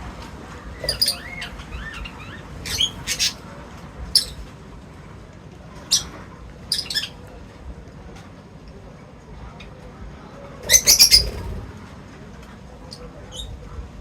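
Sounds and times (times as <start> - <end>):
birds chirping: 0.6 - 4.5, 5.7 - 7.3, 10.6 - 11.7.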